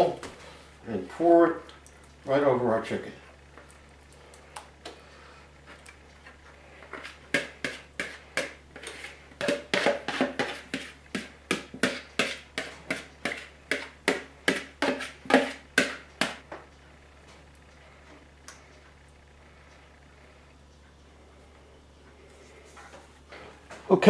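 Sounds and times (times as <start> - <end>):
spoon scraping a mixing bowl: 6.8 - 16.4.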